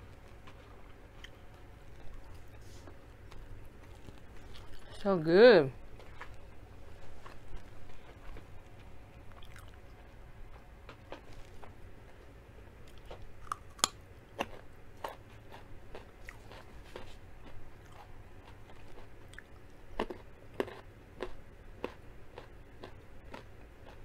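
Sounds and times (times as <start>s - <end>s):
wet chewing: 0.2s - 5.0s, 5.9s - 11.7s
carrot crunching: 12.9s - 24.0s.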